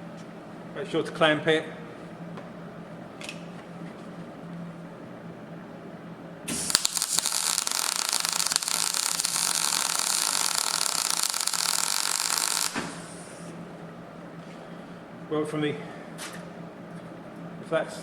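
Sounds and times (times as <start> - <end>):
welding arc crackling: 6.5 - 13.6.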